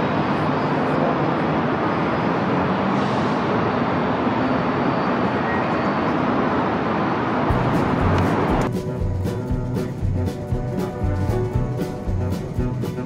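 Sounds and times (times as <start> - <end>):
city background noise: 0.0 - 13.0
music with thumping beats: 7.5 - 13.0.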